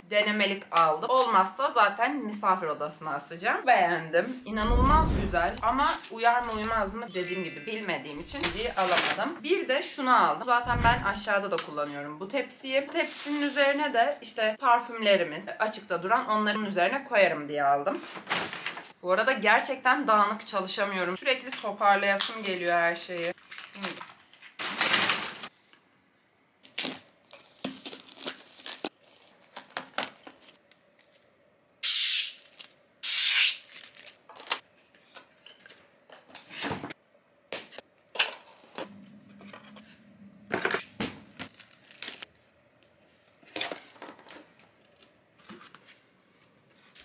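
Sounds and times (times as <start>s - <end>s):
plastic packaging crinkling: 23.2s - 25.4s, 26.6s - 31.2s, 32.4s - 32.8s, 33.6s - 34.6s, 41.4s - 42.3s
plastic ripping: 23.3s - 25.4s, 27.6s - 30.6s, 32.4s - 34.6s, 41.4s - 42.3s.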